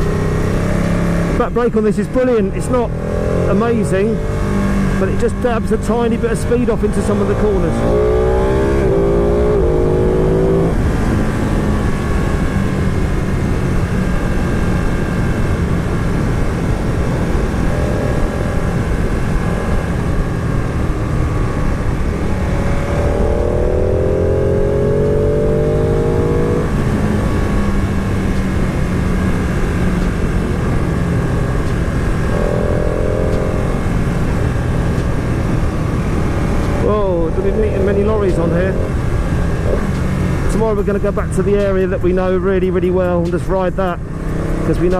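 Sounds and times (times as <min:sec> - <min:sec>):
motorcycle engine accelerating: 0:00.0 - 0:44.9
wind and road noise: 0:00.0 - 0:44.9.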